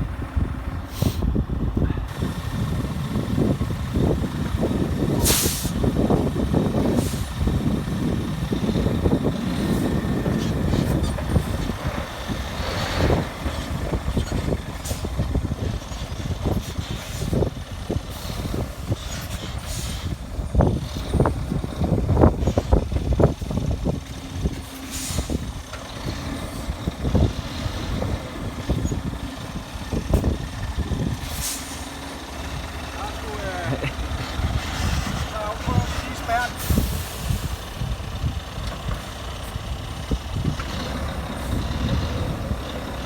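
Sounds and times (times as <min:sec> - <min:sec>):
diesel truck engine rumbling: 0:00.0 - 0:43.0
air brake hiss: 0:00.9 - 0:01.3, 0:05.2 - 0:05.8, 0:24.9 - 0:25.4, 0:31.2 - 0:31.9.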